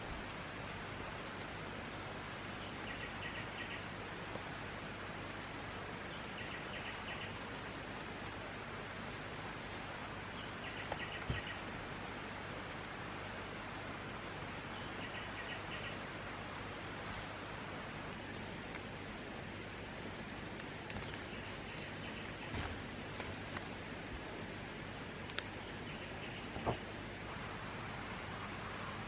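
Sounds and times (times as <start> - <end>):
background hiss: 0.0 - 29.0
insect trilling: 9.5 - 29.0.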